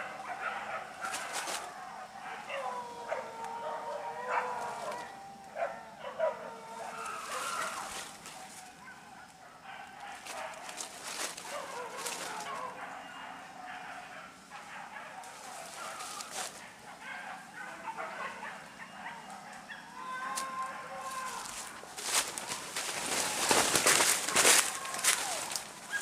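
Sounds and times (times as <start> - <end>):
dog long drawn-out cry: 0.0 - 8.9, 11.5 - 21.8
dogs barking and yelping: 0.0 - 26.0.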